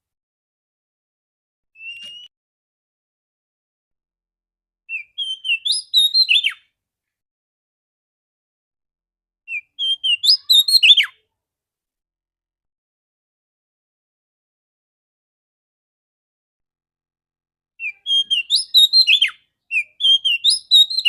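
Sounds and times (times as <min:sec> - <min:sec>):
bird singing whistled notes: 0:01.8 - 0:02.3, 0:04.9 - 0:06.7, 0:09.5 - 0:11.2, 0:17.8 - 0:21.0.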